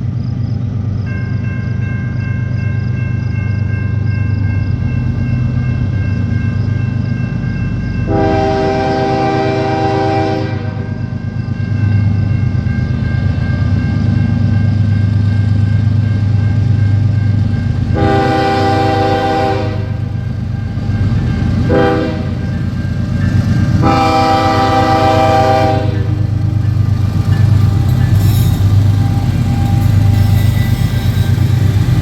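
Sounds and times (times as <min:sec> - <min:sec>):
locomotive engine rumbling: 0:00.0 - 0:32.0
locomotive air horn blasts: 0:08.1 - 0:11.0, 0:18.0 - 0:20.1, 0:21.7 - 0:22.4, 0:23.8 - 0:26.4.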